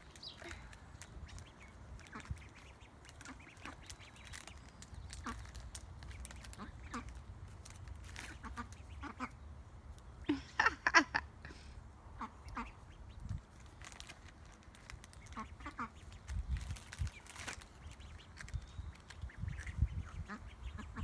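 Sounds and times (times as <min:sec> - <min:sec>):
ducks quacking: 0:06.4 - 0:07.2, 0:08.2 - 0:09.4, 0:12.2 - 0:13.0, 0:15.2 - 0:16.1, 0:19.2 - 0:21.0.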